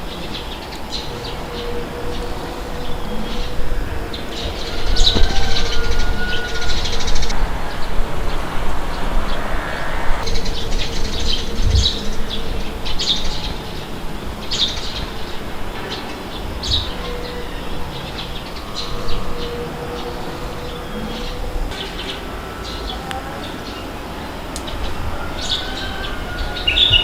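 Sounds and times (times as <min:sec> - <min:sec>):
wind rushing: 0:00.0 - 0:21.7.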